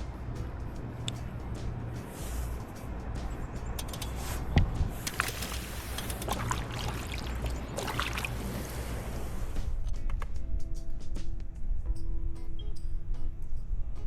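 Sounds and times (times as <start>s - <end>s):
water splashing and trickling: 0.0s - 9.8s
steady low rumble: 0.0s - 14.0s.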